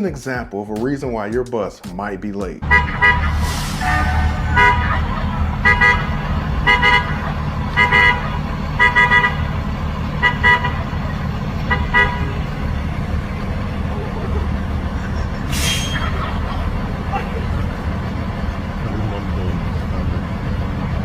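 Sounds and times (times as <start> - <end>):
bus horn short toots: 2.6 - 9.5, 10.2 - 11.0, 11.7 - 12.5
bus engine idling: 2.6 - 21.0.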